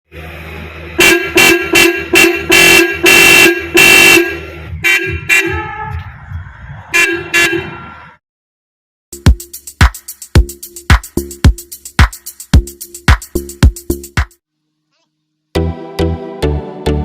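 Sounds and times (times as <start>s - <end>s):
motorcycle horn honking: 1.0s - 5.9s.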